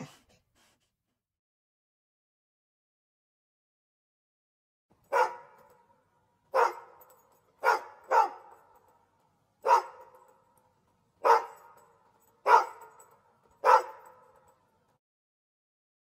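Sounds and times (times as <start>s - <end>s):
dog barking: 5.0s - 5.9s, 6.5s - 8.9s, 9.6s - 10.4s, 11.2s - 14.6s.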